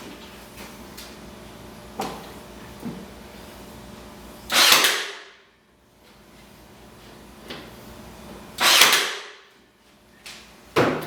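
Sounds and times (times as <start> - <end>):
nail gun firing into boards: 4.5 - 5.4, 8.6 - 9.5.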